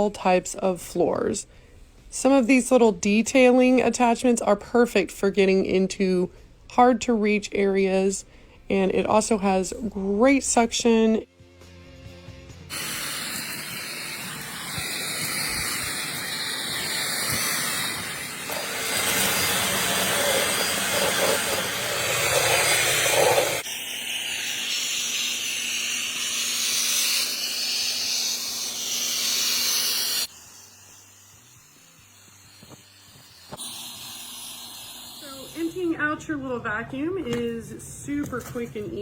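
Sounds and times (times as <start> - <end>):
vacuum cleaner hissing: 12.7 - 36.5.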